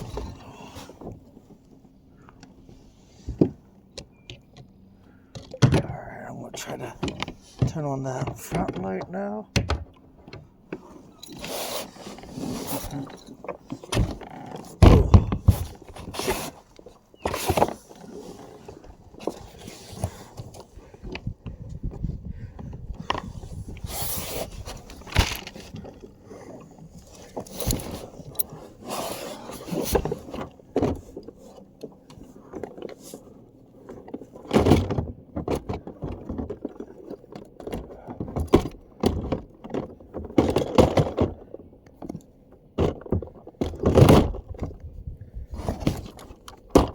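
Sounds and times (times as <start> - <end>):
gear knocking and scraping on kayak: 0.0 - 46.9
loud thumps: 14.8 - 15.7.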